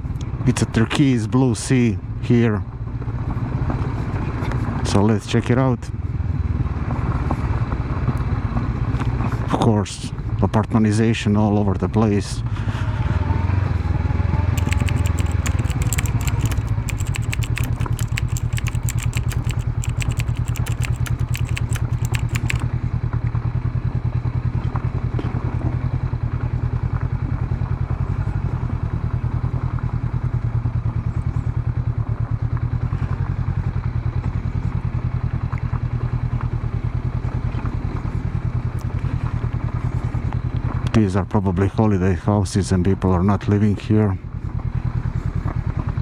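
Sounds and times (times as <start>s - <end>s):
sharp clicks and crackles: 14.6s - 22.6s.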